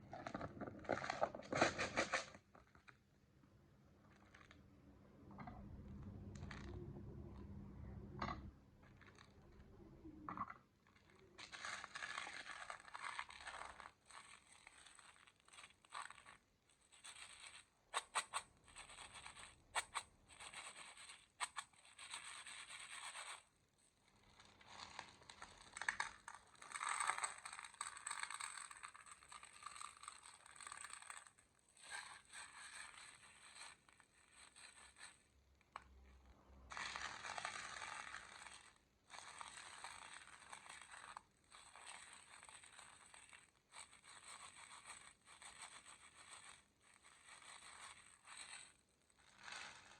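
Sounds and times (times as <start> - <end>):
candies rustling in plastic tub: 0.0 - 2.9, 10.9 - 23.5, 24.1 - 35.3, 36.7 - 49.9.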